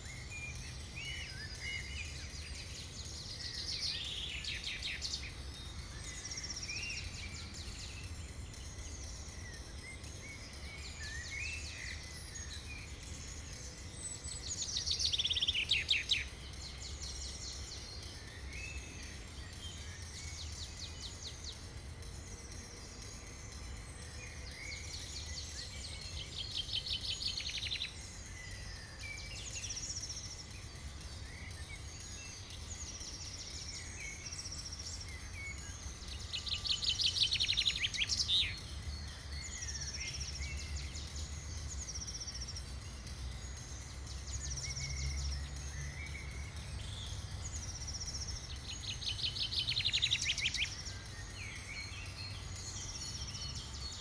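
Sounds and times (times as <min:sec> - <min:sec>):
small birds chirping: 0:00.0 - 0:54.0
fast trilling birdsong: 0:24.3 - 0:54.0.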